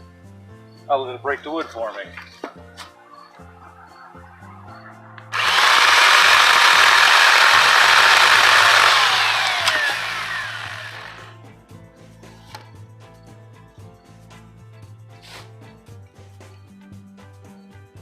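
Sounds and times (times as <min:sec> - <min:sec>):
electric chainsaw running: 0:05.3 - 0:11.4.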